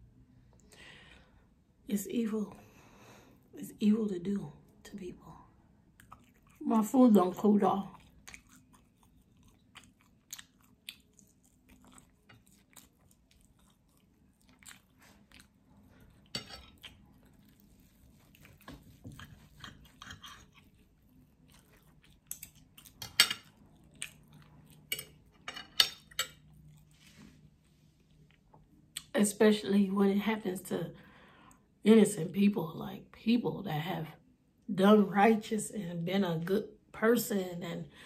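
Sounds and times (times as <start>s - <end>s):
person chewing crunchy food: 5.9s - 6.6s, 7.8s - 29.0s.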